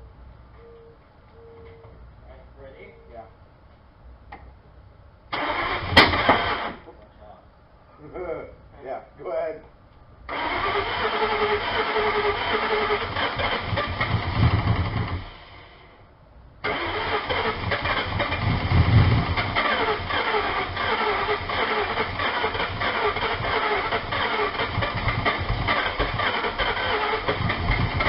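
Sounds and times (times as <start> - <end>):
car engine running and revving: 13.0 - 15.2, 17.5 - 28.0.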